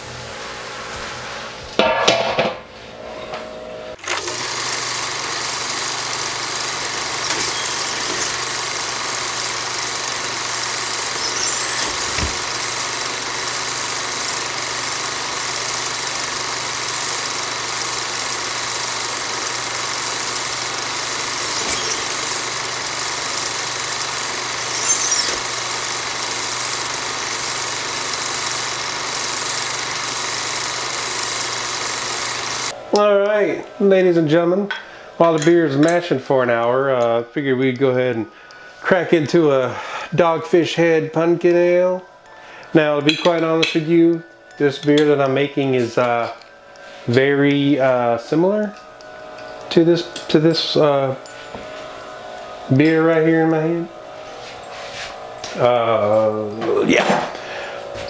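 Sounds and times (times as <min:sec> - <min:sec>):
pump humming: 0:04.0 - 0:32.9, 0:48.8 - 0:58.0.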